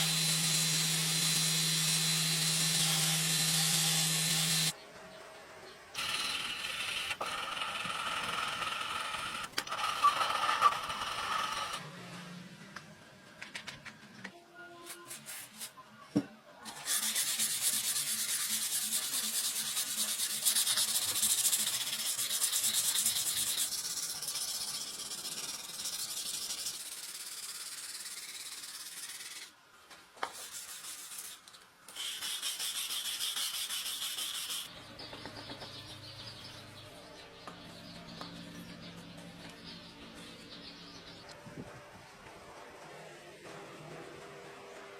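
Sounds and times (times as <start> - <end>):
sanding steel blade hiss: 16.7 - 29.5, 30.4 - 34.7.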